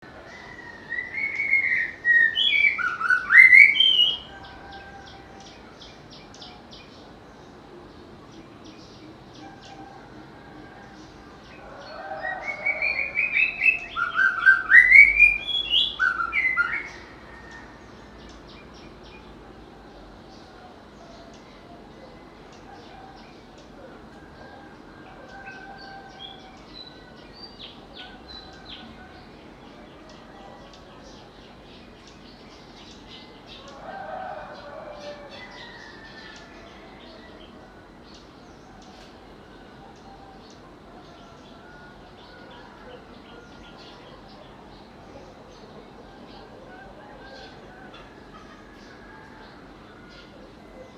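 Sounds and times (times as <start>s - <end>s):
bird singing whistled song: 1.0s - 4.3s, 12.9s - 17.0s
bird chirping: 10.8s - 33.8s.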